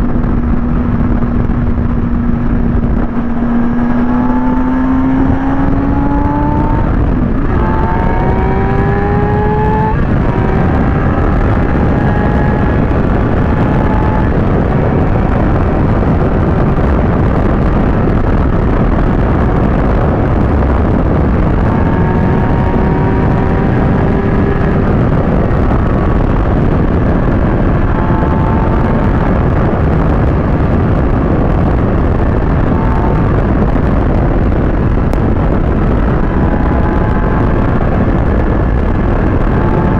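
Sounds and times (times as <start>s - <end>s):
motorcycle engine accelerating: 0.0s - 39.9s
wind rush over microphone: 0.0s - 39.9s.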